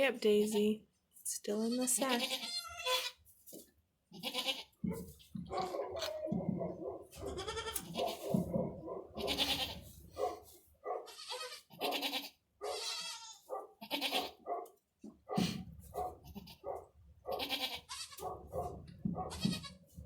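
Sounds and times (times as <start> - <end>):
goats bleating: 1.7 - 3.2, 4.1 - 4.8, 7.2 - 8.3, 9.2 - 9.9, 11.0 - 14.4, 16.2 - 16.7, 17.3 - 18.3, 19.2 - 19.9.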